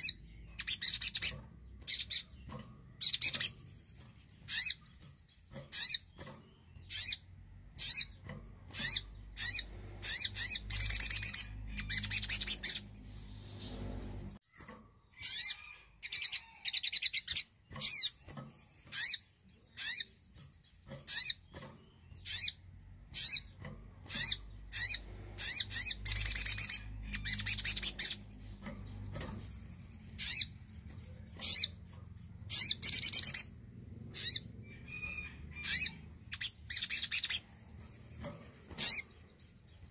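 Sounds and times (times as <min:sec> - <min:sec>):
bird chattering trills: 0:00.0 - 0:39.9.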